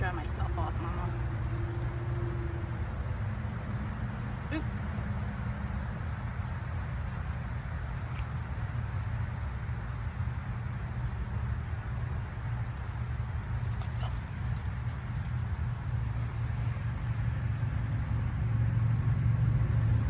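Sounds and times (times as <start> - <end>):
high-pitched insect trill: 1.1 - 5.6, 8.4 - 18.8
creek rumble and hiss: 1.8 - 5.7, 8.2 - 12.3.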